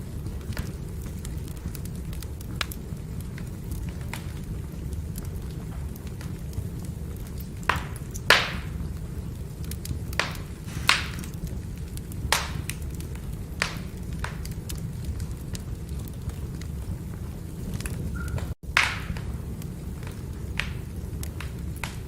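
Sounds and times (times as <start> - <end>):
fire rumbling: 0.0 - 22.0
wood crackling: 0.0 - 22.0
wood popping: 7.2 - 9.0, 9.6 - 16.8.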